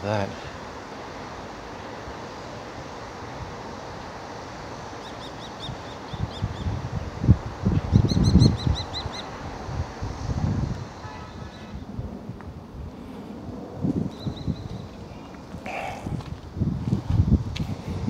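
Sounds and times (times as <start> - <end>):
steady hiss: 0.0 - 18.0
small bird chirping: 5.0 - 6.7
wind buffeting microphone: 5.6 - 18.0.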